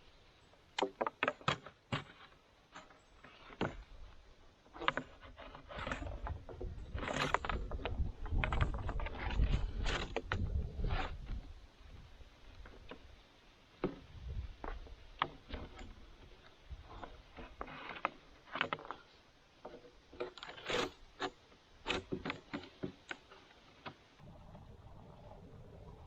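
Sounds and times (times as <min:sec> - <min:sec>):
irregular knocks clicks and scrapes: 0:00.8 - 0:11.5, 0:13.8 - 0:24.2
steady low rumble: 0:24.2 - 0:26.0.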